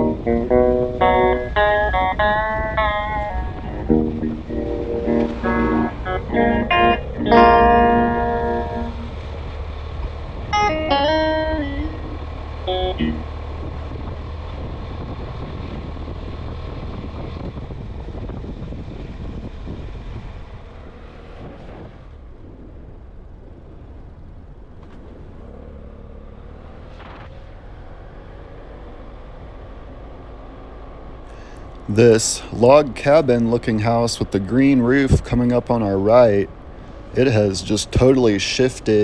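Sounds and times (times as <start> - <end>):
plucked guitar phrase: 0.0 - 9.2, 10.5 - 13.3, 31.9 - 36.5, 37.2 - 39.0
vehicle driving on road: 0.0 - 39.0.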